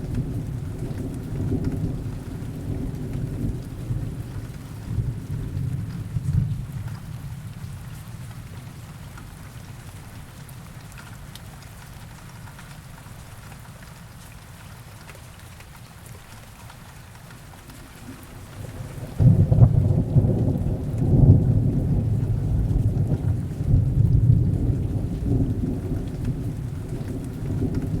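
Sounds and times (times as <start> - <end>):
heavy rain falling: 0.0 - 28.0
thunder rumbling: 17.6 - 28.0.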